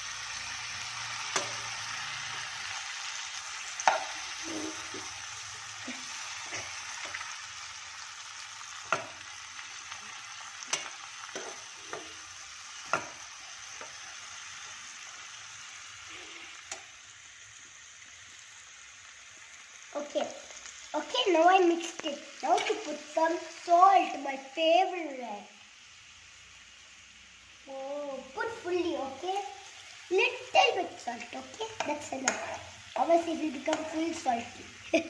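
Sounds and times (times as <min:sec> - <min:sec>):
vegetables sizzling in a wok: 0:00.0 - 0:35.0
metal spoon scraping a pan: 0:10.6 - 0:12.2, 0:31.7 - 0:32.8.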